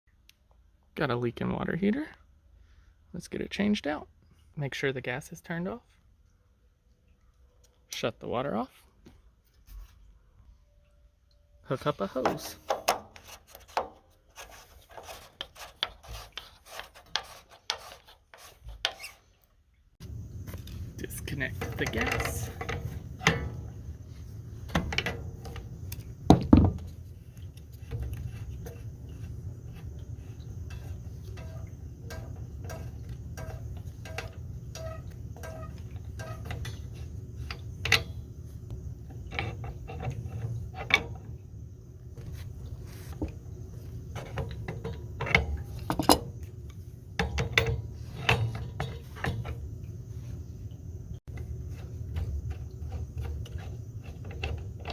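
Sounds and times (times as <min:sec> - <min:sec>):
steady low hum: 0:20.0 - 0:54.9
metal tool clinks and knocks: 0:44.2 - 0:46.4.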